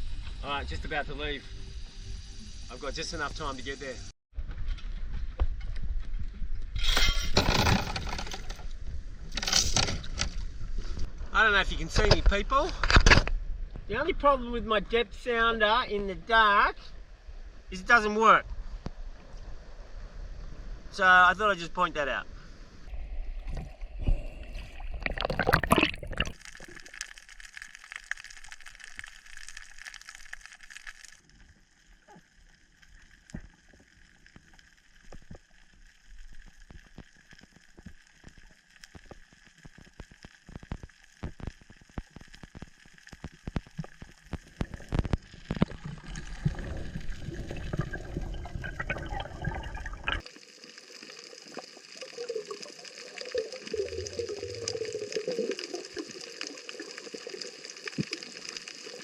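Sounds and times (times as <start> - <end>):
water gurgling and sloshing: 22.8 - 59.0
short clicks and crackles: 26.2 - 46.3.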